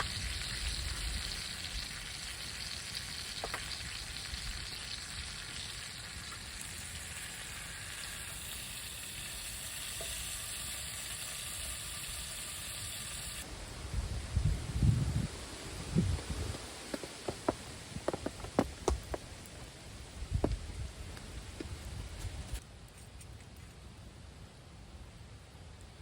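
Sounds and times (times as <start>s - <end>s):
oil popping: 0.0s - 13.4s, 16.2s - 19.3s
chicken sizzling in hot oil: 0.0s - 13.5s.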